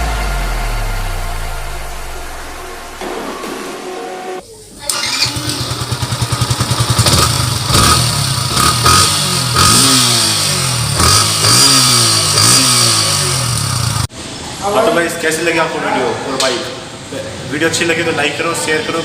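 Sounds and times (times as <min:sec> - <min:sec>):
motorcycle engine idling and revving: 0:00.0 - 0:03.0, 0:05.2 - 0:14.1.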